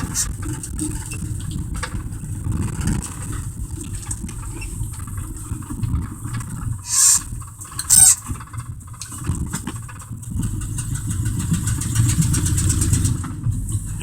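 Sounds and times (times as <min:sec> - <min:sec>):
pickup truck engine rumbling: 0:00.0 - 0:14.0
sharp high-pitched noise: 0:06.9 - 0:08.2.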